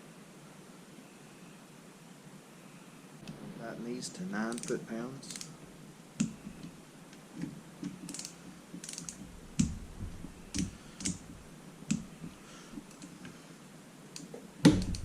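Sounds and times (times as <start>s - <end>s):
hand tools clicking on metal: 4.5s - 5.5s, 7.8s - 9.7s.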